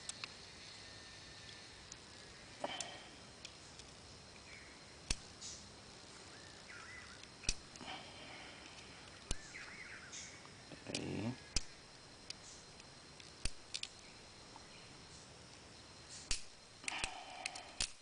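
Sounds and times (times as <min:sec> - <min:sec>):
handling ticks and rustles: 0:01.4 - 0:18.0
lighter clicks: 0:16.3 - 0:18.0.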